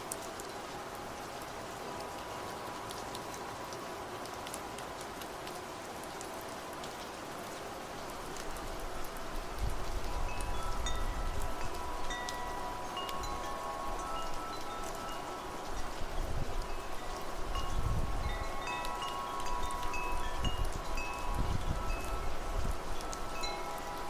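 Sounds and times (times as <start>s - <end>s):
low wind gusts: 0.0s - 24.0s
steady rain: 0.0s - 24.0s
wind chimes ringing: 9.8s - 24.0s.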